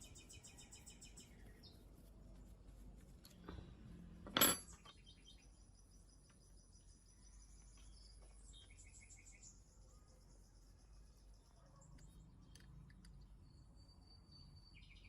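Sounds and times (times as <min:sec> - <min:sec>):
sharp ringing clink: 0:04.4 - 0:05.0
faint bird chirps: 0:04.8 - 0:15.0.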